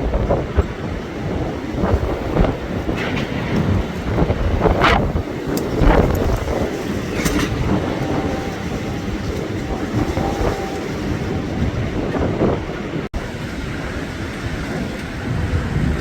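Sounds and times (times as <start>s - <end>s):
strong wind gusts: 0.0s - 16.0s
wind buffeting microphone: 0.0s - 16.0s
faint steady whistle: 7.2s - 11.6s.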